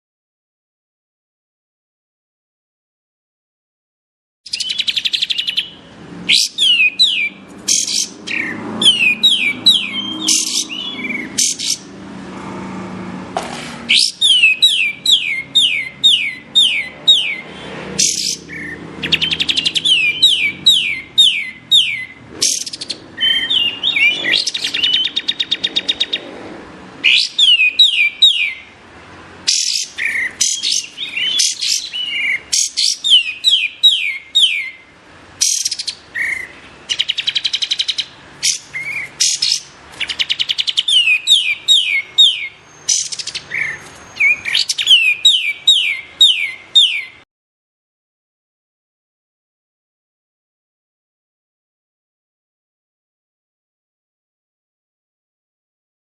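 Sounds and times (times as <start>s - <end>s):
songbird whistling and trilling: 4.5s - 11.9s, 13.9s - 26.3s, 27.0s - 28.7s, 29.5s - 34.8s, 35.4s - 47.2s.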